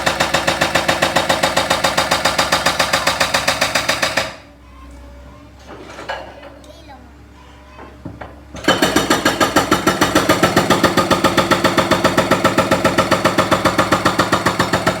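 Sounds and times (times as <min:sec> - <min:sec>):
jackhammer pounding concrete: 0:00.0 - 0:04.4, 0:08.6 - 0:15.0.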